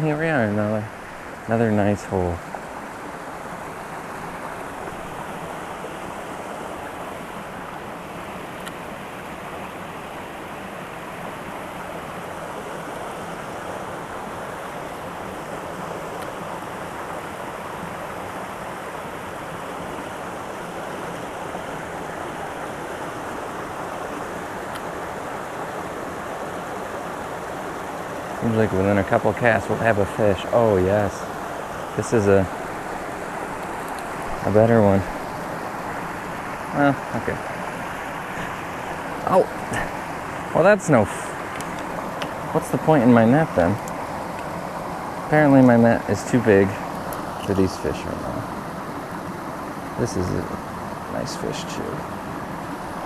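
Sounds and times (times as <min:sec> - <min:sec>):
creek running over rocks: 0:00.0 - 0:53.0.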